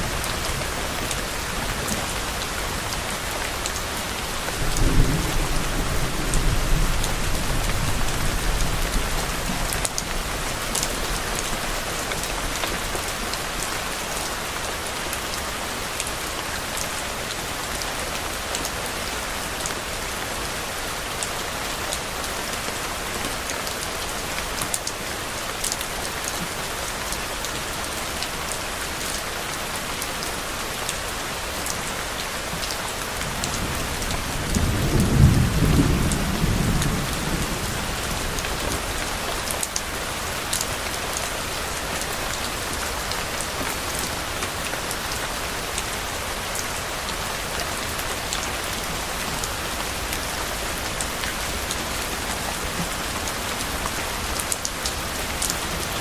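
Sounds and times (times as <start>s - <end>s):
rain pattering: 0.0s - 56.0s
sharp ticks of raindrops: 0.0s - 56.0s
distant thunder rumble: 4.6s - 9.8s.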